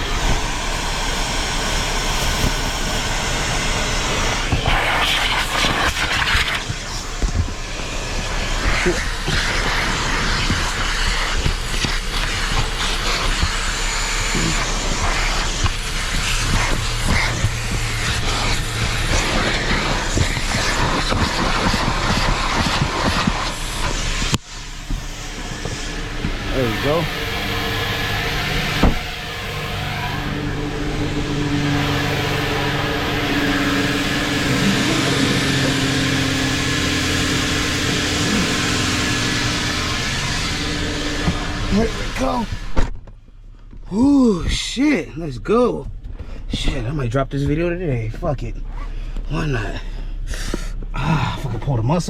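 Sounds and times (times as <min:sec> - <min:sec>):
vacuum cleaner running: 0:00.0 - 0:43.0.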